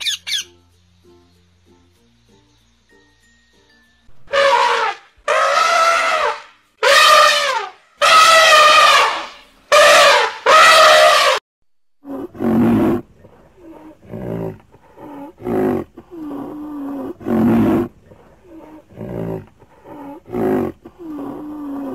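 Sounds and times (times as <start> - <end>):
elephant trumpeting: 4.2 - 11.4
large animal roaring: 12.0 - 21.9.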